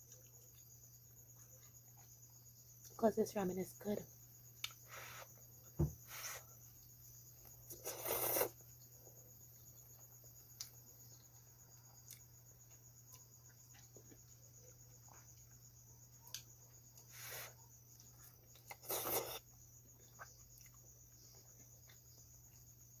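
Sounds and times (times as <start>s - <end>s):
crickets chirping: 0.0s - 23.0s
loud slurp of noodles: 7.8s - 8.6s, 18.8s - 19.4s.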